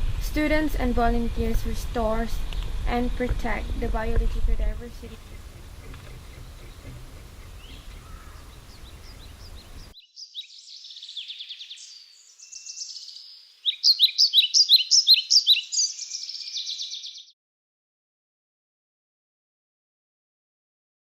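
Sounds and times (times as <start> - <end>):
distant bird chirps: 5.0 - 17.3
songbird singing trills: 5.0 - 17.3.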